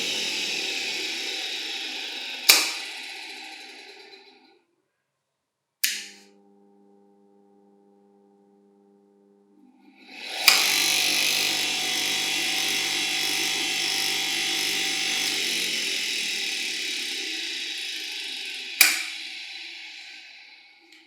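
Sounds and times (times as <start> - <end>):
bench polisher motor whirring: 0.0 - 4.6, 6.2 - 21.0
switch click: 5.8 - 6.3.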